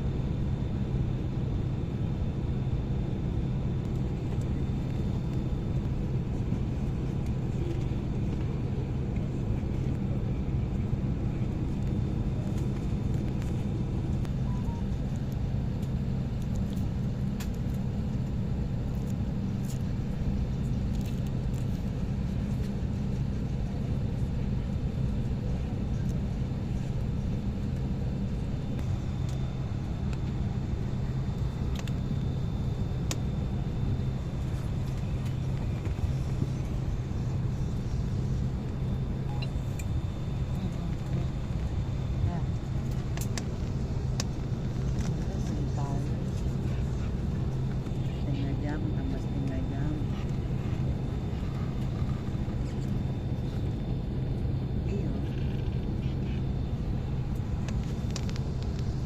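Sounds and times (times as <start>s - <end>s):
airliner cabin drone: 0.0s - 59.0s
high-pitched whine: 33.4s - 41.5s.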